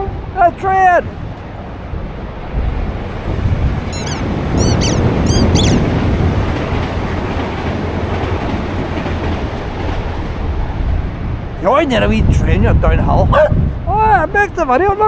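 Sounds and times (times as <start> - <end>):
short high chirps: 3.9 - 5.9
train passing rumble: 4.3 - 12.8.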